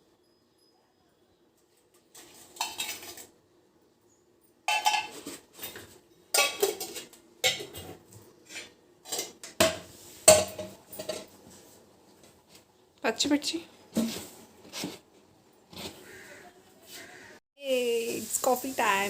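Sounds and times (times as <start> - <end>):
kitchen utensils and dishes clattering: 1.9 - 3.4, 4.6 - 11.5.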